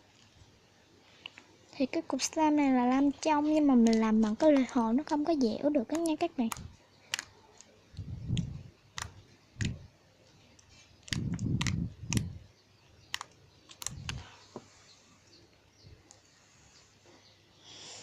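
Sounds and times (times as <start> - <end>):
slime squelching: 2.6 - 14.4
sticky slime clicks and pops: 8.3 - 9.8, 11.0 - 12.4, 13.0 - 14.2.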